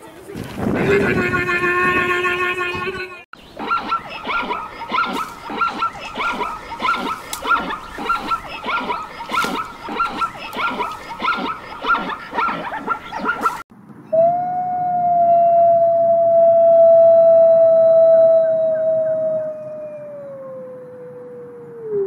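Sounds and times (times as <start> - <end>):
zebra barking yelps: 3.4 - 13.6.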